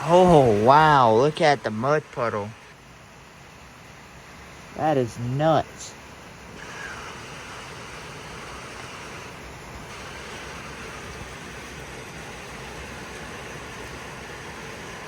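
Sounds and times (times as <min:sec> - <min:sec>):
rain falling on water: 0:06.6 - 0:15.0.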